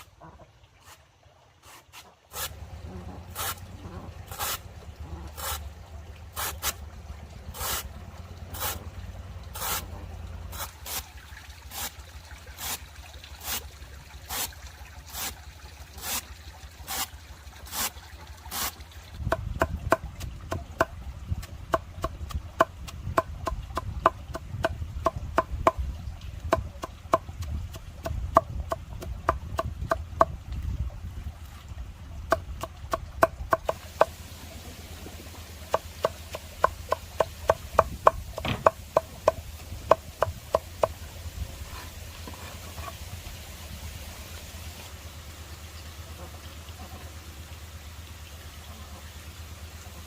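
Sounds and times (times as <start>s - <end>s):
hand tools working wood: 1.6s - 4.6s, 5.3s - 5.6s, 6.3s - 6.8s, 7.5s - 7.9s, 8.5s - 8.8s, 9.5s - 9.9s, 16.0s - 16.2s, 16.9s - 17.1s, 17.7s - 17.9s, 18.5s - 20.9s, 26.5s - 30.4s, 32.3s - 34.2s, 35.6s - 41.0s, 41.6s - 43.0s.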